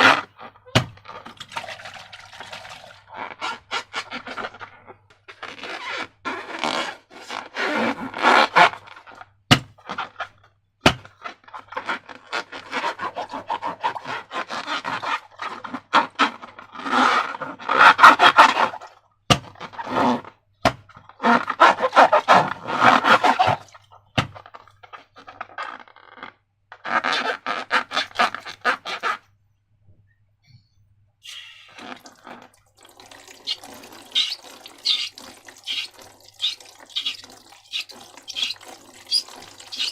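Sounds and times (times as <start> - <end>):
slime squelching and crackling: 31.8 - 39.9.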